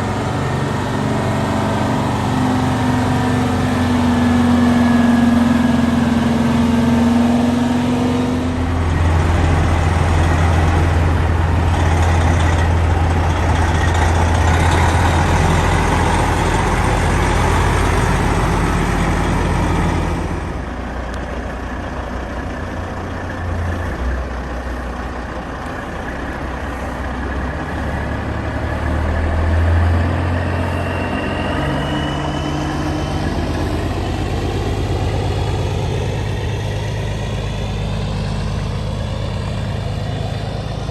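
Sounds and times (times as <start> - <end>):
diesel truck engines rumbling: 0.0 - 40.9
steady low tone: 0.0 - 40.9.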